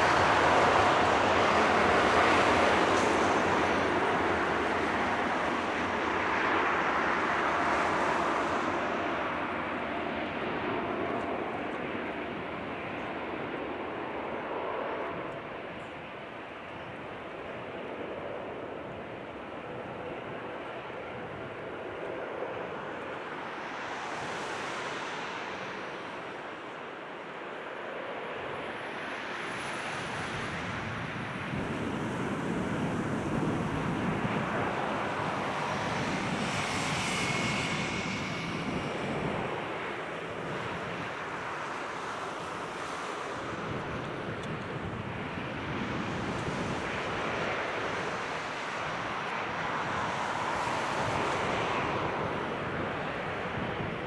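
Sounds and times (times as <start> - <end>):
jet engine rushing: 19.5 - 54.0.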